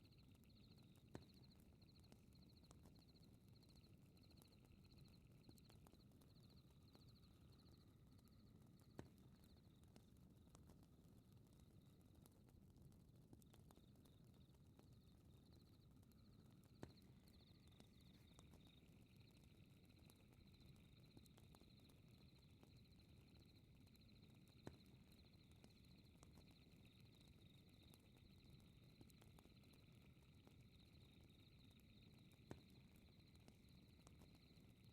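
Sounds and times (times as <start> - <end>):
fireplace crackling and popping: 0.1 - 34.9
night insects trilling: 16.6 - 34.9.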